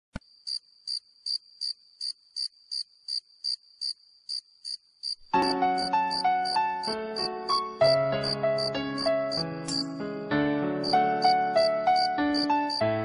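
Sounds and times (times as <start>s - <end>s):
cricket chirping: 0.2s - 9.9s, 10.8s - 12.8s
keyboard music with piano melody: 5.3s - 13.0s.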